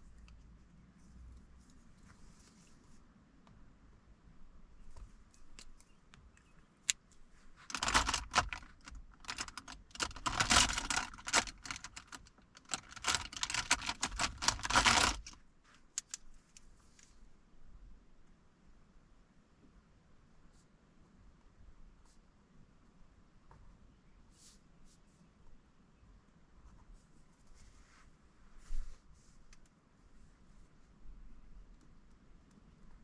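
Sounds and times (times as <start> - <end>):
small clicks and taps: 4.9 - 17.1.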